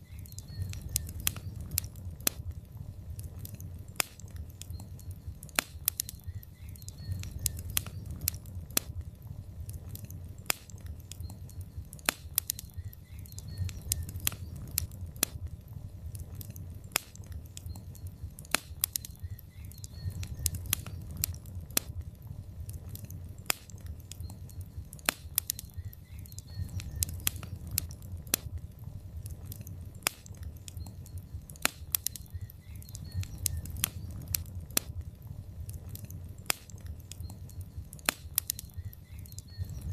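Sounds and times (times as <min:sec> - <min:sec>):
logs crackling in fireplace: 0:00.0 - 0:39.9.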